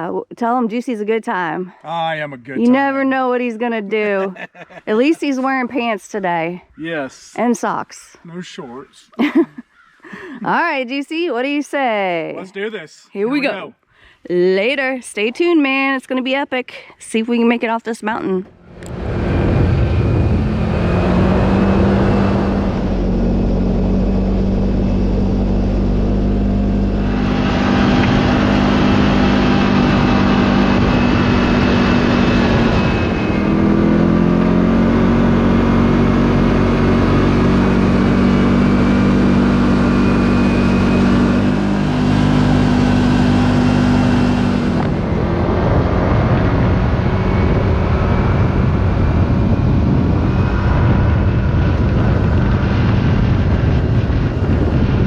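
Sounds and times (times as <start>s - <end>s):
utility vehicle engine running: 18.4s - 55.0s
wind and tyre rushing noise: 18.5s - 55.0s.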